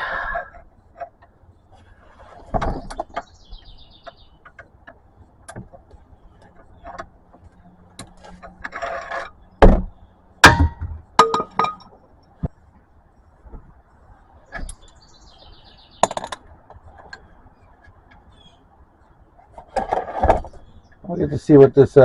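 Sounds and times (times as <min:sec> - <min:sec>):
sharp metallic knocks: 0:09.6 - 0:12.0.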